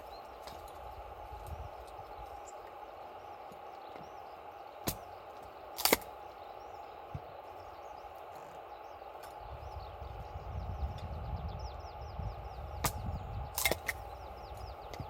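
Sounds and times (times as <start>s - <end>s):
small birds chirping: 0.0s - 15.0s
campfire crackling and popping: 4.6s - 6.3s, 12.7s - 15.0s.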